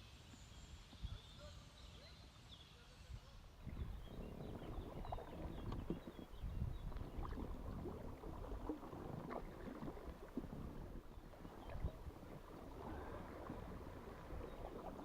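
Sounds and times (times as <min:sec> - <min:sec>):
paddle splashing in water: 0:03.6 - 0:15.0
water drips: 0:03.7 - 0:15.0.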